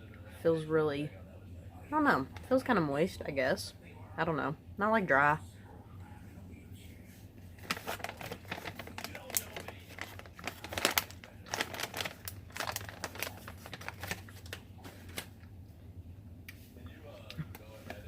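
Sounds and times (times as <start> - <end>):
plastic pouch crinkling: 7.6 - 15.5.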